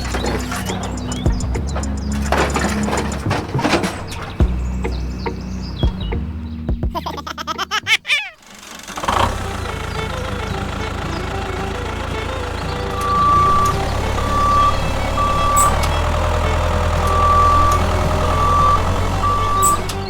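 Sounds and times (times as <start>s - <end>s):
vehicle engine running: 0.0s - 20.0s
reversing alarm beeps: 12.9s - 20.0s.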